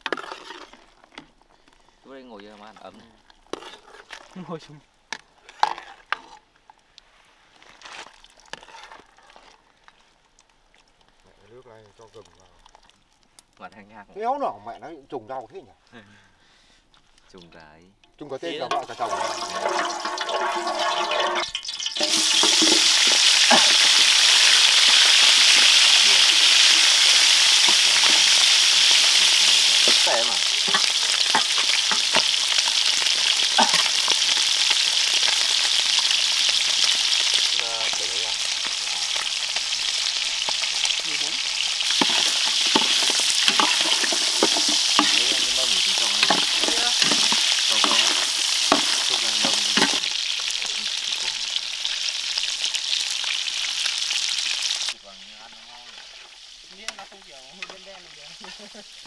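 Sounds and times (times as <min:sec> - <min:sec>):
ribs sizzling in hot oil: 0:18.4 - 0:59.0
utensil scraping and knocking pan: 0:18.7 - 0:32.4, 0:41.9 - 0:50.1.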